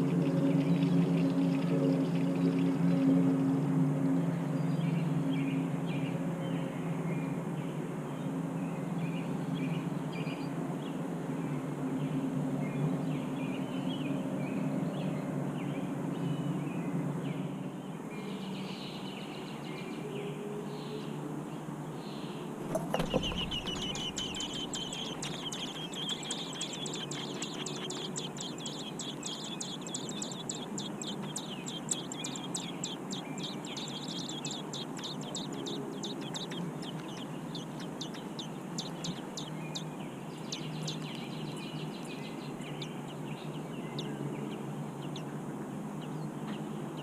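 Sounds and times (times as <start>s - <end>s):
bird nestlings chirping: 22.6s - 41.3s
brief thump: 22.7s - 24.5s.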